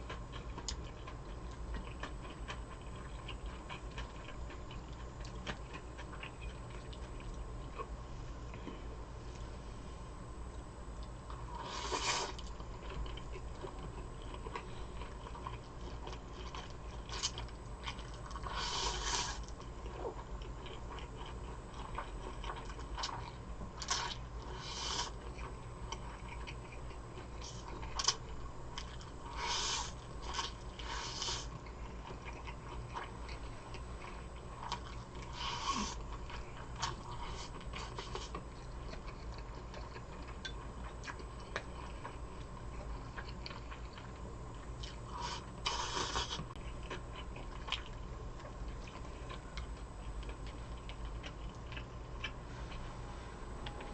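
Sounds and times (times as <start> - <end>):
person chewing and biting: 0.0 - 8.6, 11.0 - 52.4
steady low hum: 0.0 - 53.9.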